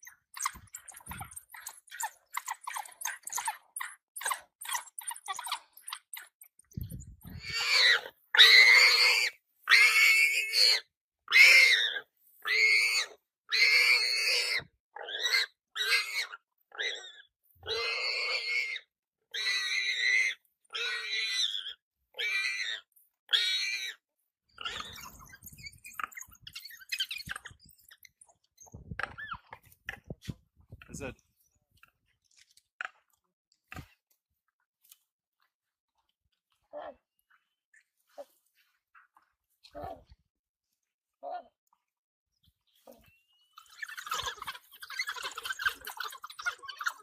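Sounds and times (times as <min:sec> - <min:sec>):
animal crying out: 0:07.2 - 0:24.0, 0:24.6 - 0:28.1, 0:43.6 - 0:47.0.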